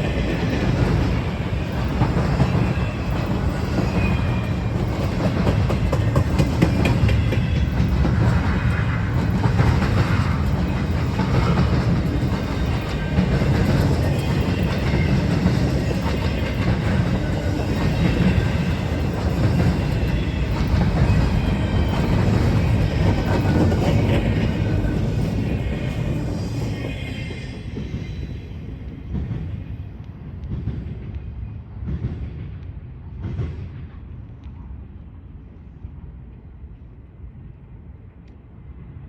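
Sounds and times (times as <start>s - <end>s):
wheels clattering on rails: 0.0s - 27.1s
train rumbling past: 0.0s - 39.0s.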